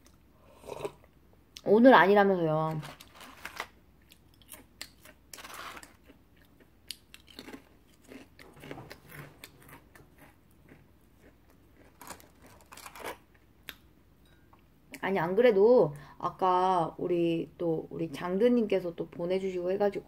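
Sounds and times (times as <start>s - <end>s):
crunchy cookie chewing: 2.7s - 13.9s.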